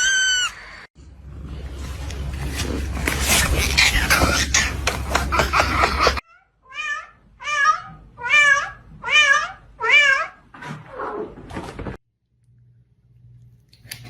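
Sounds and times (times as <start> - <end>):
cat meowing: 6.3 - 10.4.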